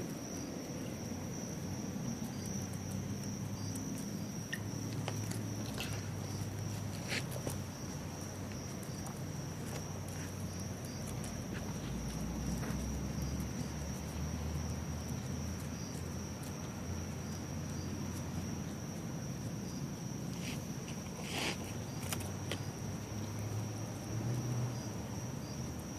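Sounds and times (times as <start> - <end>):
cicada drone: 0.0 - 25.9
soft rustles: 2.8 - 13.7, 20.3 - 22.7.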